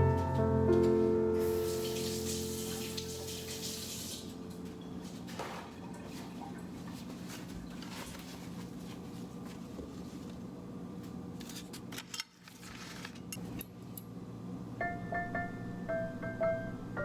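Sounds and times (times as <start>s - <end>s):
water running from tap: 1.5s - 4.4s.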